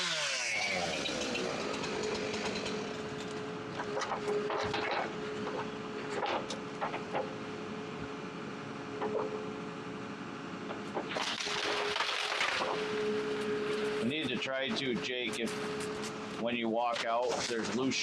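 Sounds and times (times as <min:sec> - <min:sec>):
forestry machine running: 0:00.0 - 0:18.0
wood crunching: 0:10.8 - 0:13.9, 0:16.8 - 0:18.0
branches cracking and snapping: 0:11.0 - 0:13.0.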